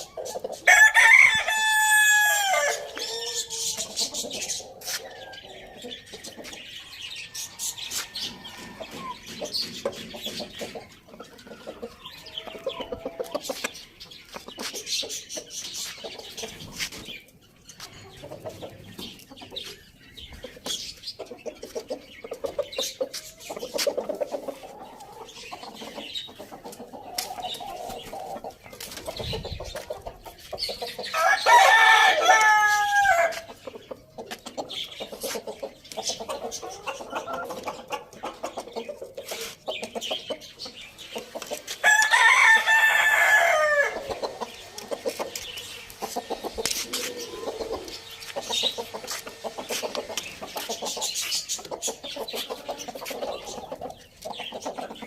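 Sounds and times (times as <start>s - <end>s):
chickens clucking: 0.0s - 55.0s
rooster crowing: 0.7s - 3.3s, 31.2s - 33.4s, 41.8s - 44.0s.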